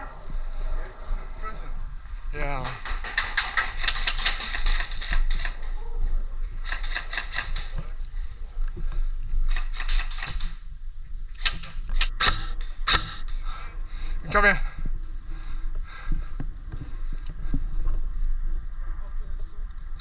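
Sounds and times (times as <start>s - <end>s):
airsoft guns firing: 2.6s - 5.7s, 6.6s - 7.8s, 9.5s - 10.6s, 11.4s - 13.3s.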